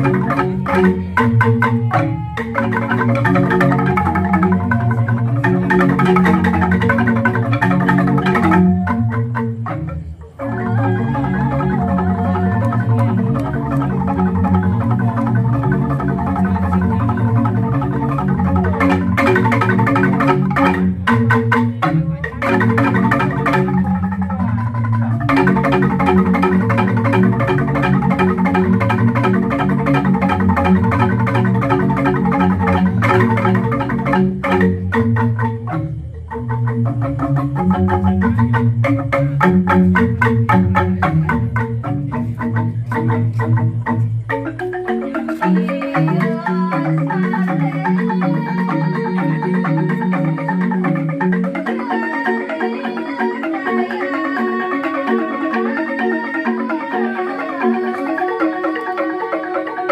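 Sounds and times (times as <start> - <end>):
deep ringing bamboo bass notes: 0.0 - 47.2
bamboo xylophones struck: 0.0 - 53.5.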